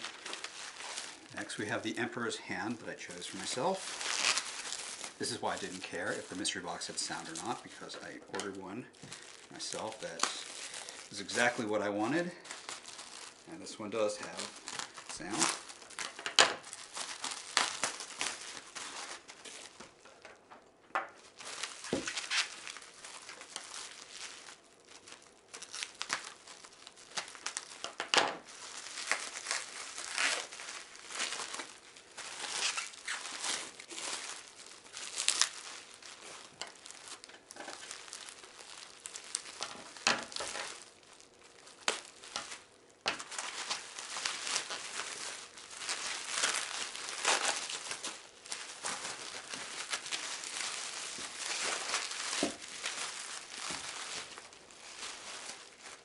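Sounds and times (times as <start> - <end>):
packaging tearing: 0.0 - 20.2, 21.2 - 56.0
packaging crinkling and rustling: 0.0 - 56.0.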